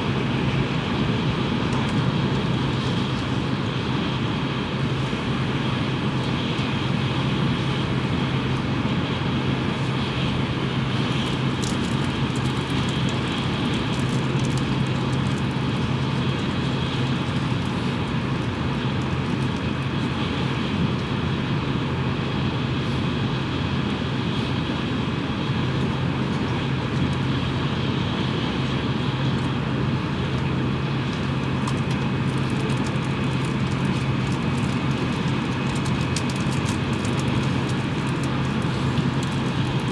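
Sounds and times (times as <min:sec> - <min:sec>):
train wheel noise: 0:26.7 - 0:39.9.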